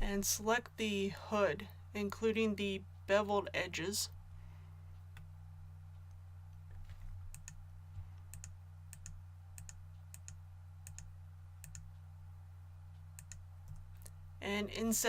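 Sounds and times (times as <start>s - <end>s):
low electrical hum: 0.0s - 15.0s
computer mouse clicks: 7.3s - 7.6s, 8.3s - 12.0s, 13.0s - 14.2s.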